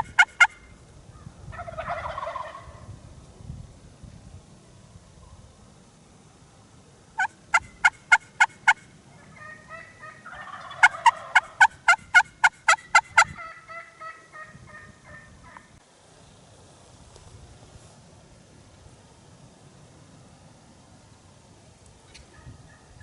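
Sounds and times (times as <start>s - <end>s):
turkey warbling call: 0.0s - 0.6s, 1.5s - 2.8s, 7.2s - 15.8s
turkeys yelping: 0.0s - 0.6s, 1.5s - 2.8s, 7.2s - 15.8s.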